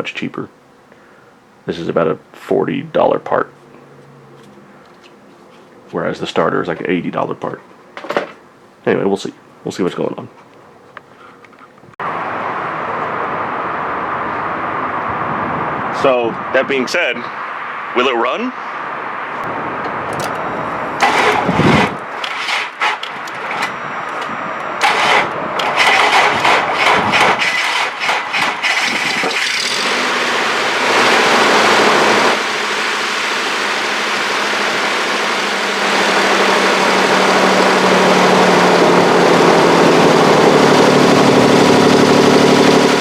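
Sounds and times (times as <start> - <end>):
engine revving: 17.4 - 43.0
car engine idling: 18.8 - 43.0
engine starter cranking: 19.8 - 30.0.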